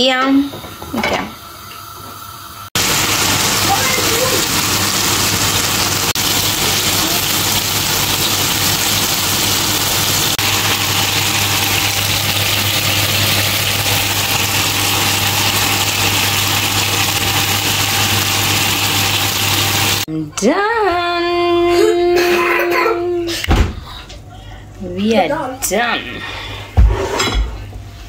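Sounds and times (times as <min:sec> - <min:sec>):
chicken sizzling in oil: 0:02.2 - 0:20.1.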